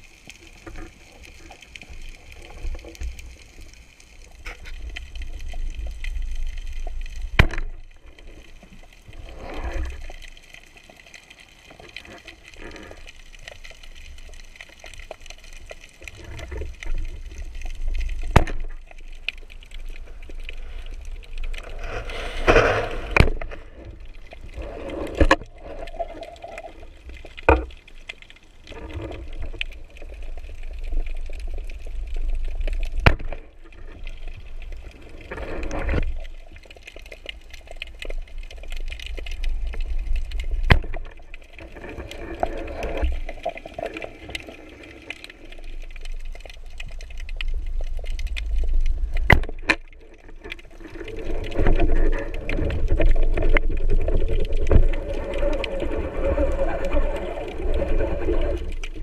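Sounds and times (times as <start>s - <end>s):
water sloshing or bubbling: 0.0s - 59.0s
low underwater rumble: 37.9s - 59.0s.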